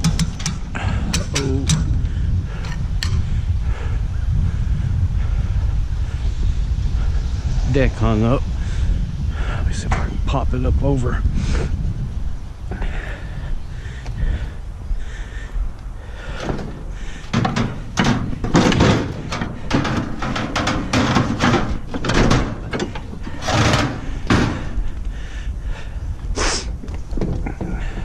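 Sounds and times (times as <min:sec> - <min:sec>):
heavy metal deck scraping and clanking: 0:16.2 - 0:25.0.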